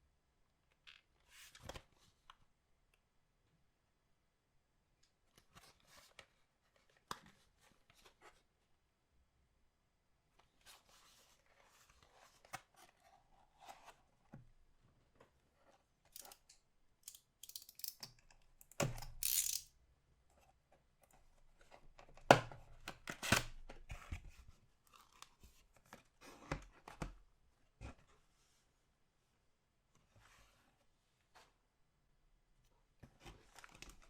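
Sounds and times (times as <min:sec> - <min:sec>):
packaging tearing: 0:19.2 - 0:19.6.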